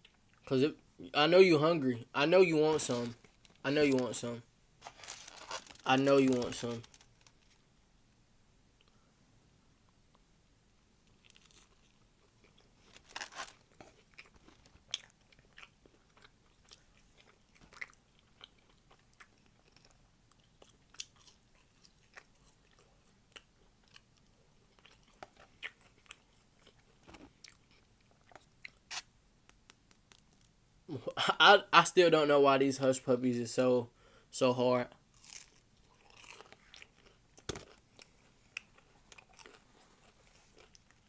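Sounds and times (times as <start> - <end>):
chewing and crunching: 11.0 - 29.0, 35.1 - 41.0.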